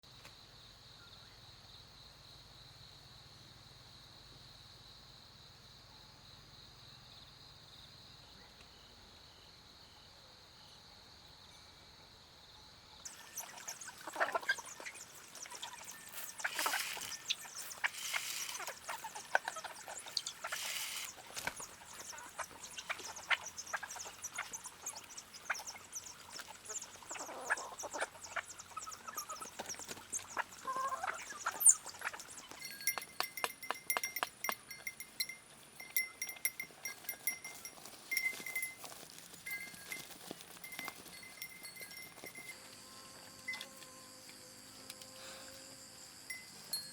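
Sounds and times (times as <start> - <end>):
insect drone: 0.1 - 46.9
chickens calling: 13.1 - 35.0
clicks and scratching: 16.4 - 21.6
bell clinking rapidly: 32.6 - 42.6.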